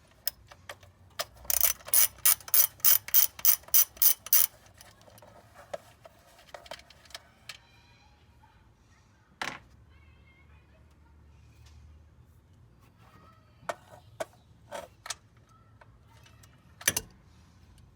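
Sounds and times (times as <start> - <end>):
ratchet wrench clicking: 1.2 - 4.6.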